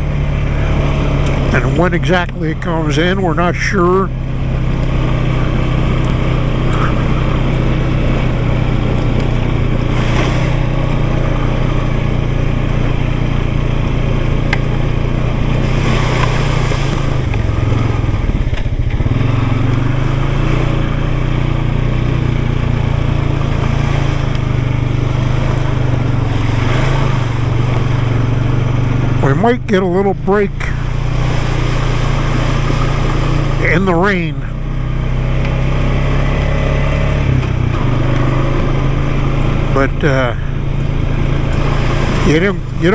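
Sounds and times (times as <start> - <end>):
off-road vehicle engine running: 0.0 - 42.9
short rushes of noise: 6.6 - 12.3, 15.4 - 21.0, 30.5 - 33.8.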